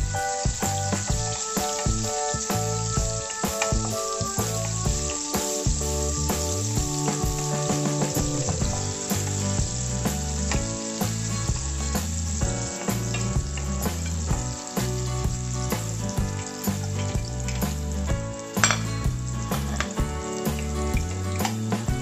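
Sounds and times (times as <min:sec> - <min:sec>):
background music with bass line: 0:00.0 - 0:22.0
shallots sizzling in hot oil: 0:00.0 - 0:22.0.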